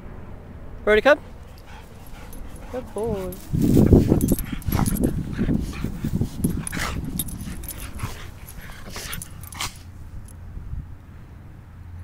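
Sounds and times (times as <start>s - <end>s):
dog breathing: 1.2s - 10.3s
light metallic jingling: 1.3s - 10.4s.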